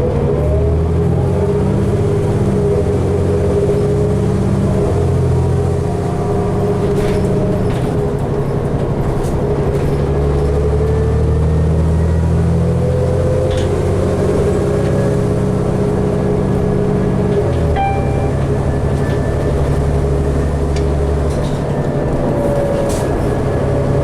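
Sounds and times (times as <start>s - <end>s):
bus engine drone: 0.0s - 24.0s
rising engine whine: 10.0s - 24.0s.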